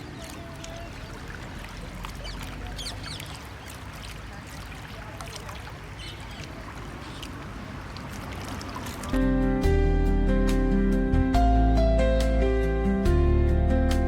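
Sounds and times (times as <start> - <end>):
high bird chirps: 2.1 - 3.8, 6.0 - 7.4.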